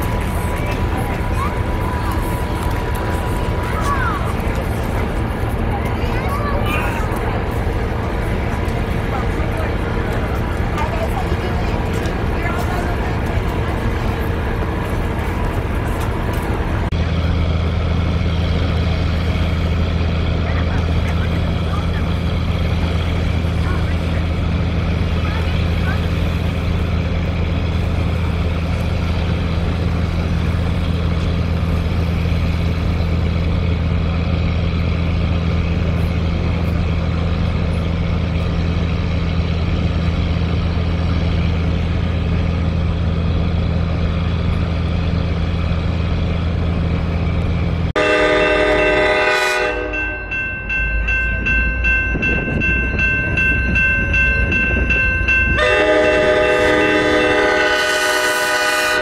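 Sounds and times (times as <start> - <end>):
locomotive engine drone: 0.0 - 59.0
moving train rumble: 0.0 - 59.0
locomotive air horn: 48.0 - 50.1, 55.6 - 59.0.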